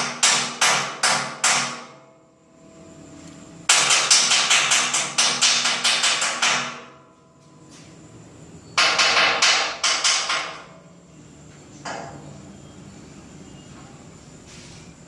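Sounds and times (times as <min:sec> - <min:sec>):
machine rapid sharp knocks: 0:00.0 - 0:02.0, 0:03.7 - 0:06.9, 0:08.8 - 0:10.7
low machine hum: 0:01.9 - 0:04.0.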